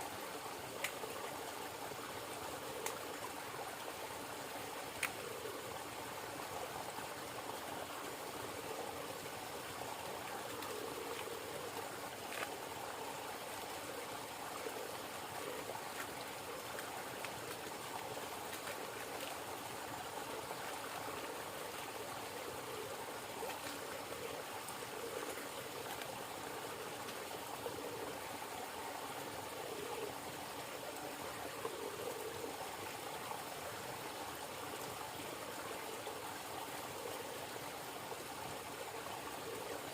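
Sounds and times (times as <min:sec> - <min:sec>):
river water flowing: 0:00.0 - 0:39.9
faint clicks: 0:00.7 - 0:01.3, 0:02.6 - 0:03.4, 0:04.9 - 0:05.6, 0:14.7 - 0:28.1.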